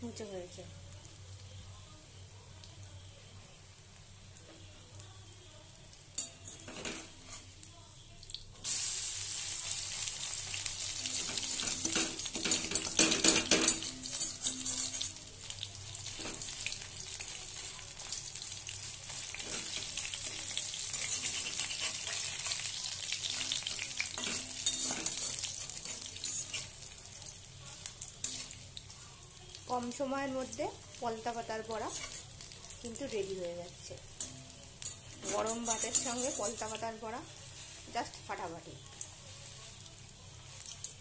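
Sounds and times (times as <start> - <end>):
fritters sizzling in hot oil: 0.0 - 41.0
spatula scraping metal pan: 11.0 - 15.2, 20.8 - 26.8, 31.8 - 32.3, 34.2 - 36.8.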